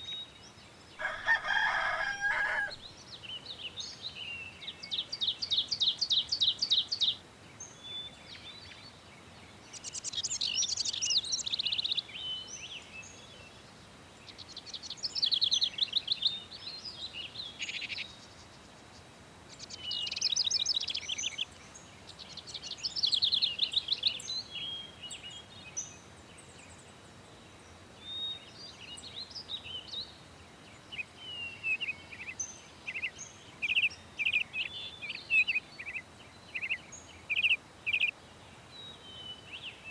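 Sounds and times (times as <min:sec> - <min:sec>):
songbird singing trilled phrases: 0:00.0 - 0:13.5, 0:14.3 - 0:18.6, 0:19.5 - 0:26.9, 0:28.0 - 0:39.9
faint bird chirps: 0:14.3 - 0:39.9.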